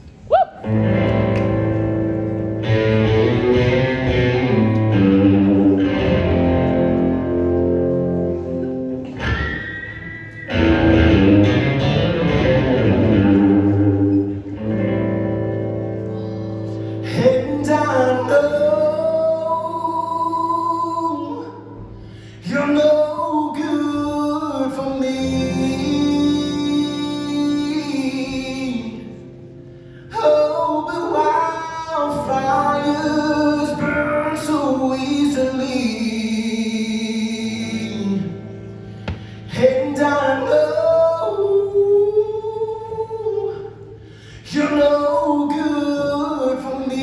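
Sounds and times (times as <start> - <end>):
guitar: 0.0 - 47.0
live country band playing: 0.6 - 47.0
sliding lead melody: 0.7 - 16.4.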